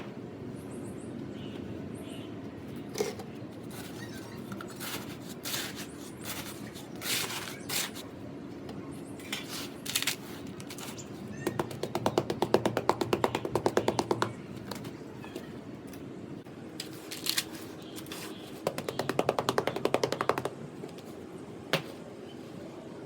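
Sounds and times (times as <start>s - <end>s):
sand-cement mixture crunching and scraping: 4.7s - 8.1s.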